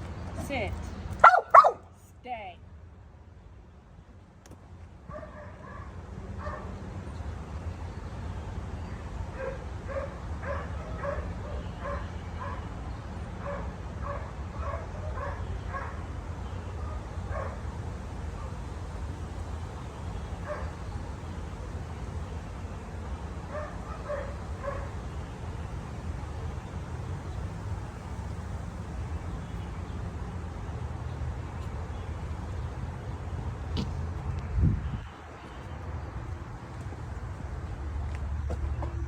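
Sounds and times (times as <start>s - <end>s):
dog yipping: 1.2s - 1.8s.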